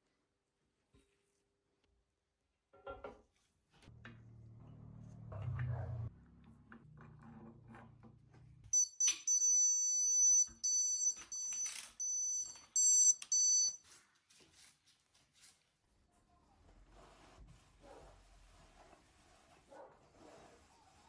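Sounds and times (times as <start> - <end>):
high-pitched electronic beeping: 8.8 - 13.8.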